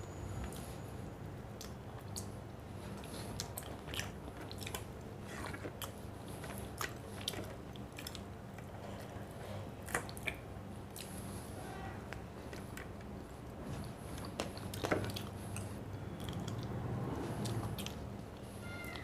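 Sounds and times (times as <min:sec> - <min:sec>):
person chewing crunchy food: 0:02.9 - 0:11.3, 0:12.1 - 0:18.1.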